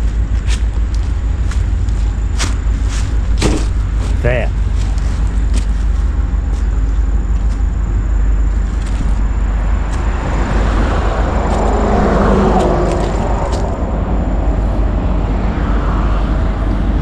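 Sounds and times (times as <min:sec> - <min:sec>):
steady low rumble: 0:00.0 - 0:17.0
motor vehicle passing by: 0:08.6 - 0:17.0.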